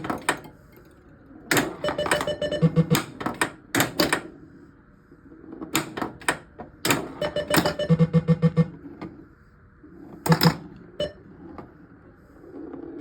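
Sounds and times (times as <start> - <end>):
pinball machine clicks and tones: 0.0 - 0.6, 1.5 - 4.3, 5.8 - 8.8, 10.3 - 11.3.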